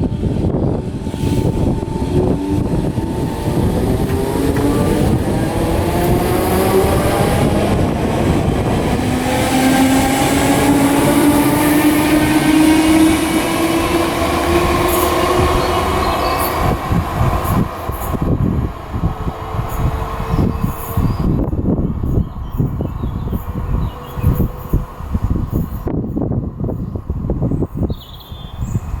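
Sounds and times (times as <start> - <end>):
electric train motor whine: 0.0 - 19.2
wheels rumbling on rails: 0.0 - 27.9.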